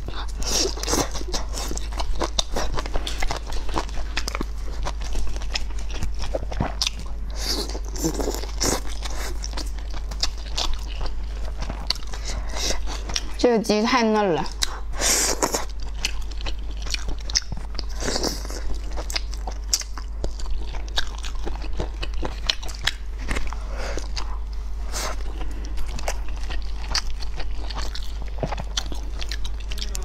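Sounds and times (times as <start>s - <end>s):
person biting and chewing food: 0.0s - 13.4s, 14.6s - 30.0s
low steady hum: 0.0s - 30.0s.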